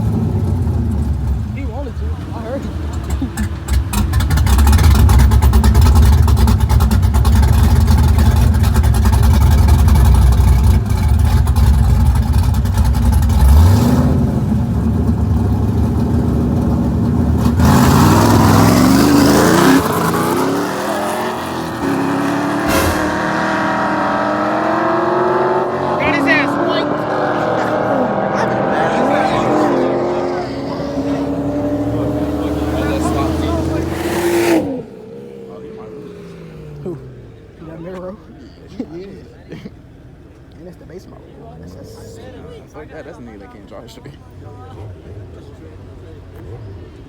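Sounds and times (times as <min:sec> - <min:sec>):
car engines accelerating hard: 0:00.0 - 0:47.0
heavy low rumble: 0:22.6 - 0:24.6.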